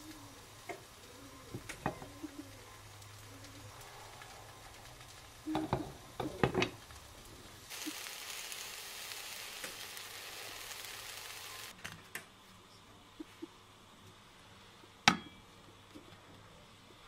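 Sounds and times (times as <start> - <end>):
aubergine sizzling in a frying pan: 0.0 - 11.8.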